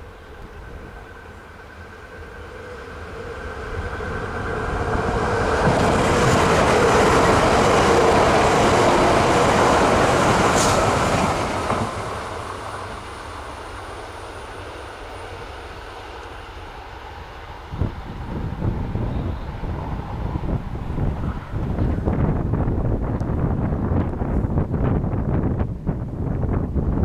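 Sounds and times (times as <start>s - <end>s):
electric train passing at speed: 0.0s - 27.0s.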